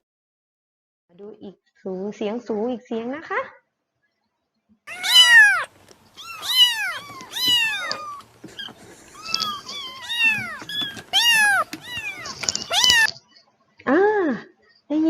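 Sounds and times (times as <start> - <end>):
kitten meowing: 4.9 - 13.1.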